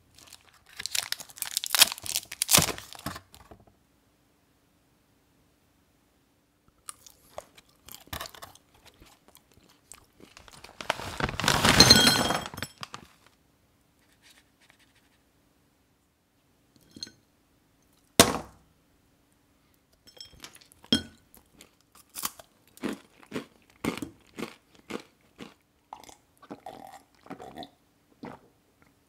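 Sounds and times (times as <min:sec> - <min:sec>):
crisp crunching while chewing: 0:00.1 - 0:03.2, 0:06.8 - 0:13.2, 0:20.5 - 0:28.4
candy cracking when bitten: 0:00.2 - 0:03.0.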